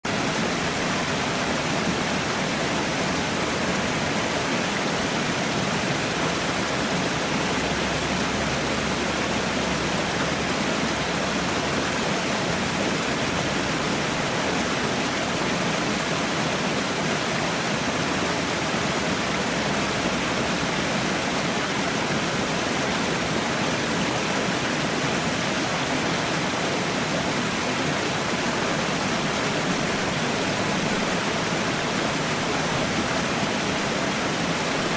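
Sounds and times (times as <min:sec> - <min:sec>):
falling water rushing: 0:00.0 - 0:34.9.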